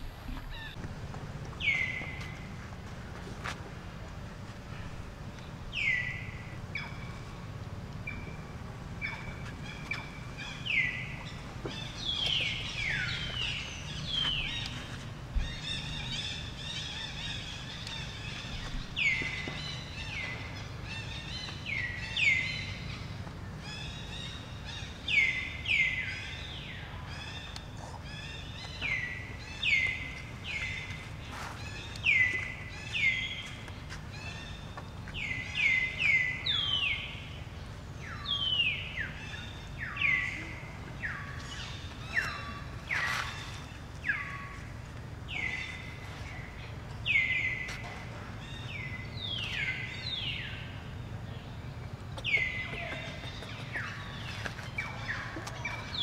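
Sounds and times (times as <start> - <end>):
low background rumble: 0.0 - 56.0.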